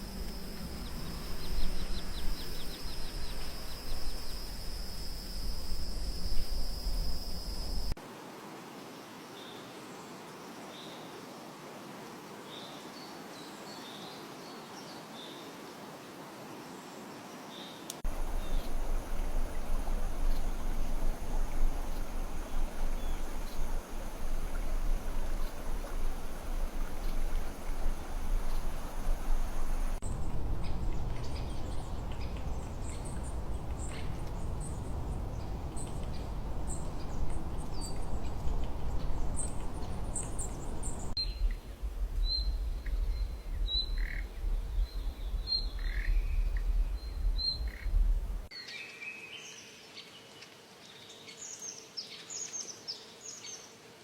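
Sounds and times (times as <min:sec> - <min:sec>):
songbirds chirping: 0:00.0 - 0:08.0, 0:17.1 - 0:53.7
low rumble: 0:18.1 - 0:48.5.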